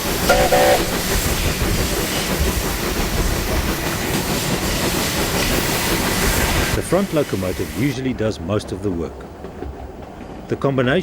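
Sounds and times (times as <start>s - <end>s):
steam locomotive hissing and rumbling: 0.0s - 9.2s
short whistle toots: 0.3s - 1.2s.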